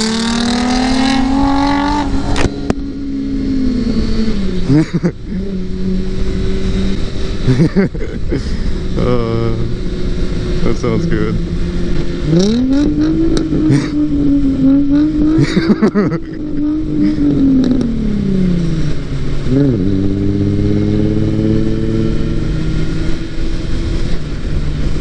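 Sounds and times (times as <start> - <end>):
car engine revving hard: 0.0 - 25.0
second engine droning: 0.0 - 25.0.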